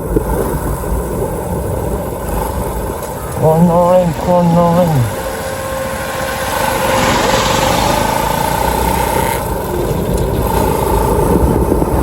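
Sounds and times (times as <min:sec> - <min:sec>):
motorcycle engine running: 0:00.0 - 0:12.0
wind and road noise: 0:00.0 - 0:12.0.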